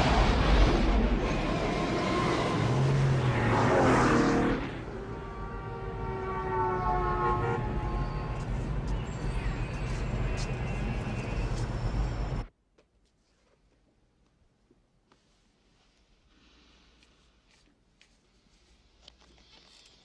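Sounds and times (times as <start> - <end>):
vehicle rushing past: 0.0 - 7.2
road noise: 0.0 - 12.5.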